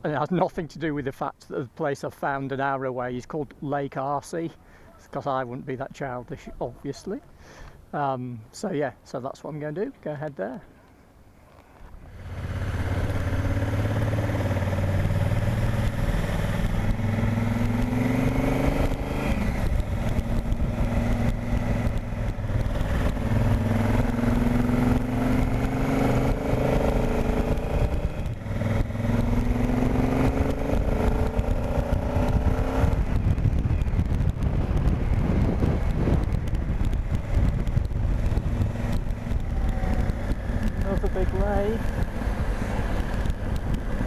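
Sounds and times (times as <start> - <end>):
motorcycle engine accelerating: 12.0 - 44.0.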